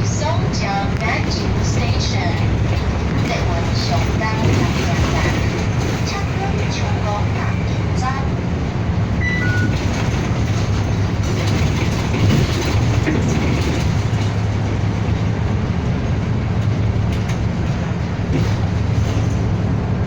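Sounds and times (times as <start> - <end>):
bus engine drone: 0.0 - 20.0
road and rattle noise: 0.0 - 20.0
short high beeps: 9.2 - 9.8.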